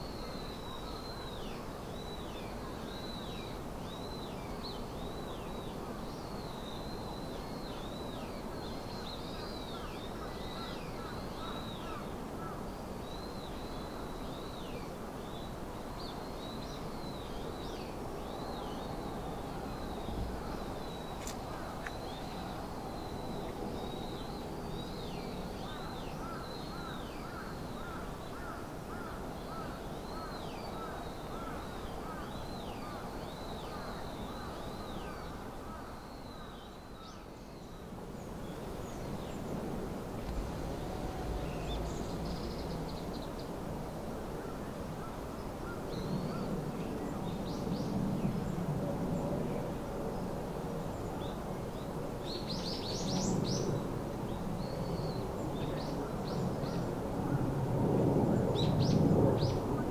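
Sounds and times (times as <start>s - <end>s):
distant background hiss: 38.1s - 45.8s
birds calling: 40.2s - 43.5s.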